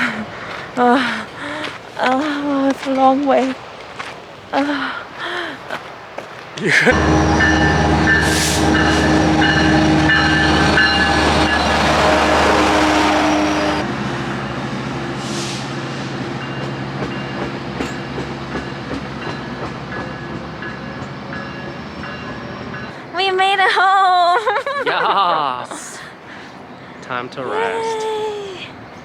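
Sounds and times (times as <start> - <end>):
train running on rails: 0.0 - 24.7
whining tones: 6.9 - 13.9.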